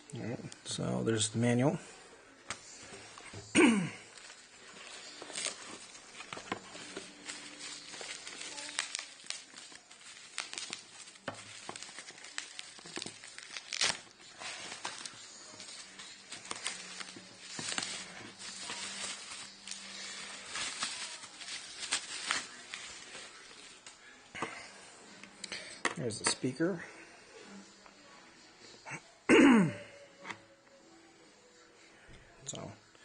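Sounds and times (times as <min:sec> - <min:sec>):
packaging crinkling and rustling: 0:04.1 - 0:24.0
sharp crackles: 0:07.2 - 0:22.8.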